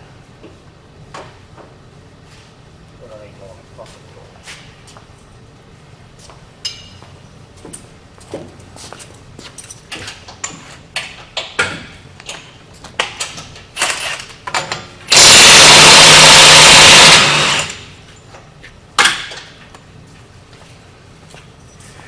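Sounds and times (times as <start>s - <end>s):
impact wrench hammering on bolt: 15.1s - 17.9s.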